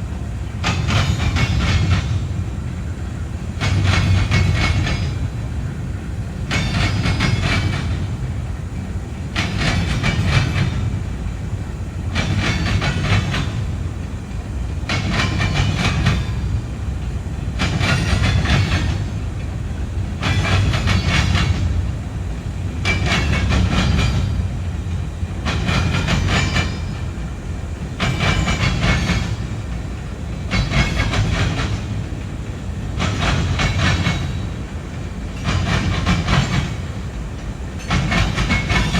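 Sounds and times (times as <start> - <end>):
train wheels rumbling: 0.0 - 38.9
wheels clacking over rail joints: 0.1 - 38.9.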